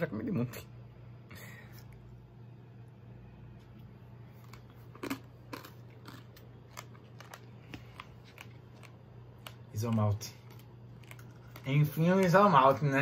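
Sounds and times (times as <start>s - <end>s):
steady low hum: 0.0s - 13.0s
crunchy chewing: 3.8s - 12.8s.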